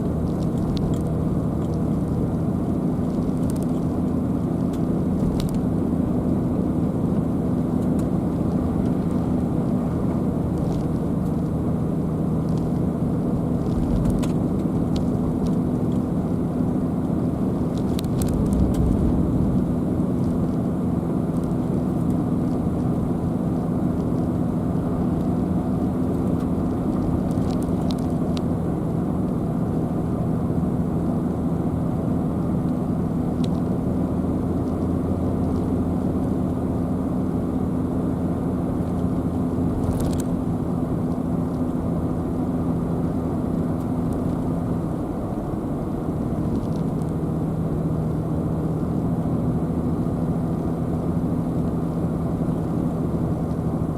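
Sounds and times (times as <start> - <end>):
car driving on road: 0.0 - 53.9.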